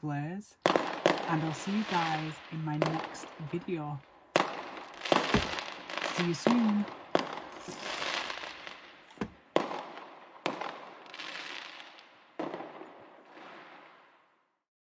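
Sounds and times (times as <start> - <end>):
fireworks bangs with hiss: 4.4 - 14.0.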